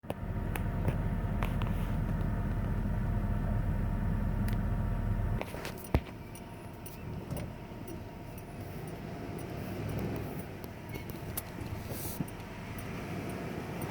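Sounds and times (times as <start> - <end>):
pickup truck engine rumbling: 0.0 - 13.9
truck clunk: 5.4 - 13.9.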